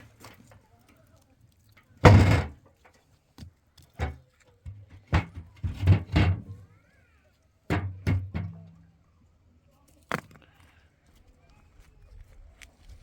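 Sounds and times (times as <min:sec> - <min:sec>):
knocks and thuds: 0:02.0 - 0:02.6.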